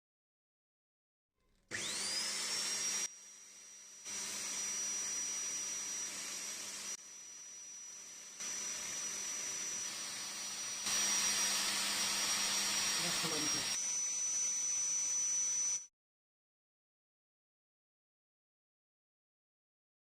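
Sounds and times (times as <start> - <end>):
electric power tool whining: 1.7 - 15.9.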